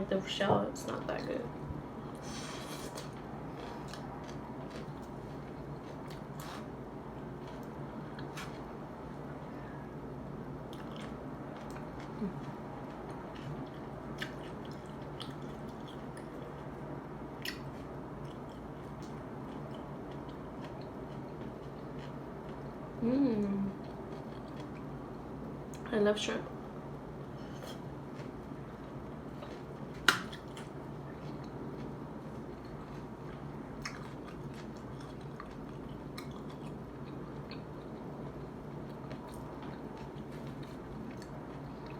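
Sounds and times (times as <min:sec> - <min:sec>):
wet chewing mouth sounds: 0:10.7 - 0:16.7, 0:29.4 - 0:41.9.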